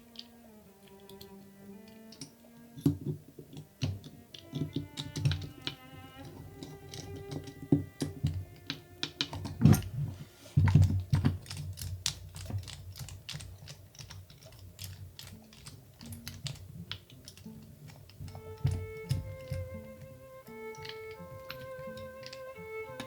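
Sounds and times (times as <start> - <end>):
soft background music: 0.0 - 11.9, 14.5 - 23.0
small plastic parts clicking: 0.0 - 23.0.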